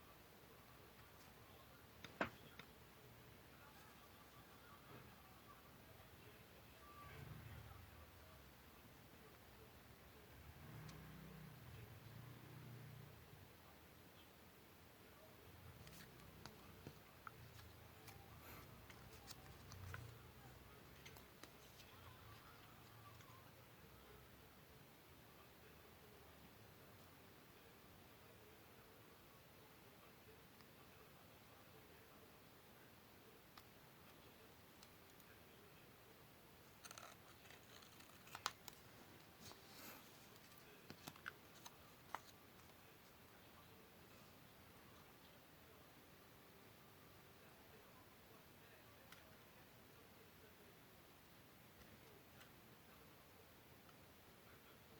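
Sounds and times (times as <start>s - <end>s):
paper and tools clicking: 36.8s - 38.8s.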